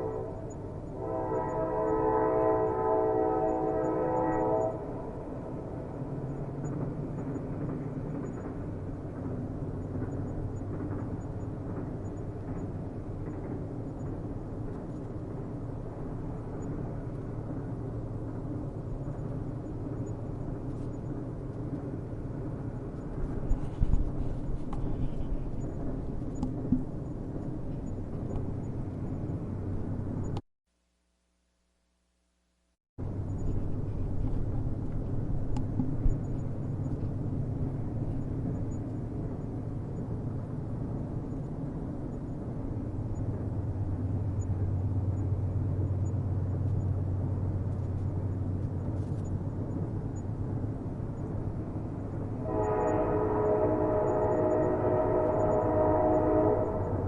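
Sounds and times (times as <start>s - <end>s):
train horn: 0.0s - 5.8s, 52.4s - 57.0s
train rumbling on rails: 0.0s - 30.4s, 33.0s - 57.0s.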